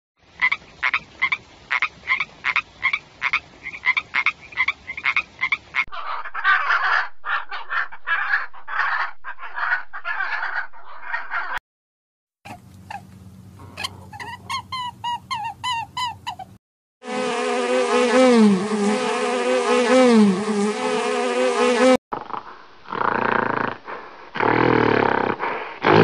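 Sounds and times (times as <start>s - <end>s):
toucan rasping calls: 0.4s - 11.6s, 12.5s - 16.6s.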